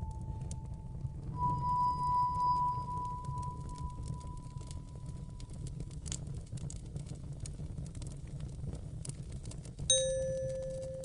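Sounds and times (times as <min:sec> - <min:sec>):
fireplace crackling: 0:00.0 - 0:11.0
low fire rumble: 0:00.0 - 0:11.0
bell-like chime ringing: 0:09.9 - 0:11.0.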